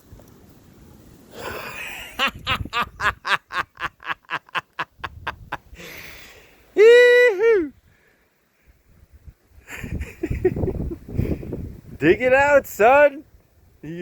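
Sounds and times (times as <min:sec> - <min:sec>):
man laughing: 0:01.4 - 0:05.8, 0:06.8 - 0:07.7, 0:09.7 - 0:11.1.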